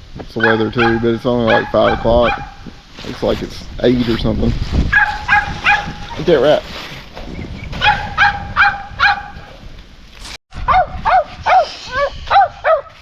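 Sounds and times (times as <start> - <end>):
small dog yapping: 4.9 - 6.2, 7.8 - 9.4.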